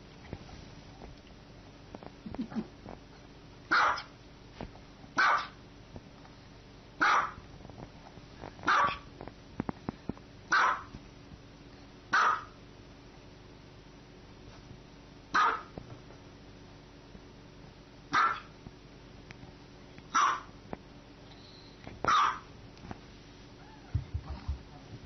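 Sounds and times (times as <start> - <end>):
dog barking: 3.7 - 4.1, 5.2 - 5.6, 7.0 - 7.4, 8.7 - 9.1, 10.5 - 10.9, 12.1 - 12.6, 15.3 - 15.7, 18.1 - 18.5, 20.1 - 20.5, 22.1 - 22.5.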